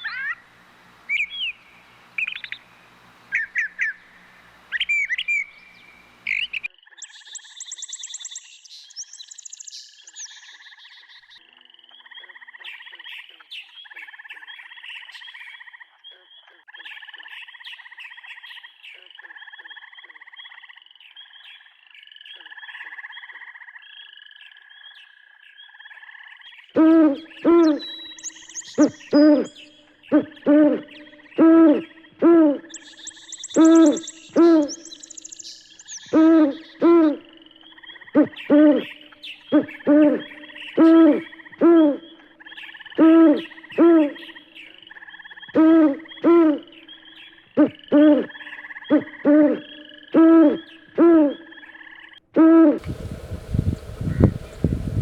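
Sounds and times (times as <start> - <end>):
owl hooting: 0.0 - 0.5, 26.8 - 42.2, 42.9 - 44.4, 45.5 - 47.0, 47.6 - 51.7, 52.4 - 55.0
steady high chirping: 32.7 - 36.2.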